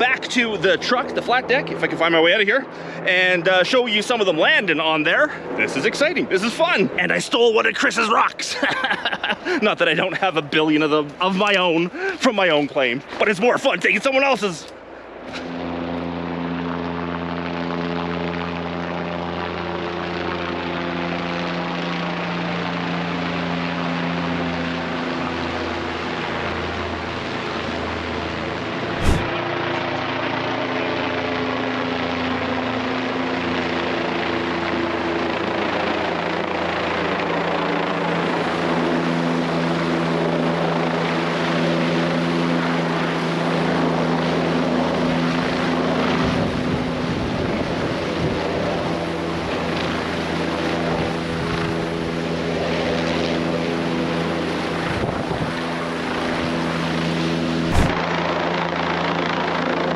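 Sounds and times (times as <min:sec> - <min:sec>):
helicopter droning: 0:00.0 - 0:47.1, 0:47.7 - 0:59.8
sharp click: 0:29.0 - 0:29.3, 0:57.7 - 0:58.0.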